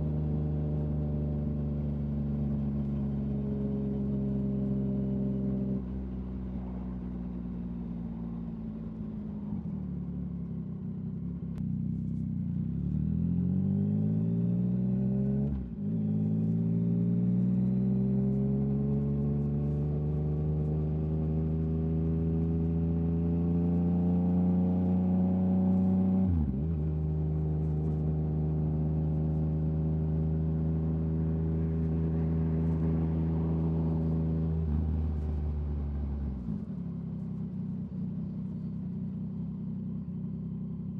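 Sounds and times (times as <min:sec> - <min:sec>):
motorcycle engine accelerating: 0:11.2 - 0:40.9.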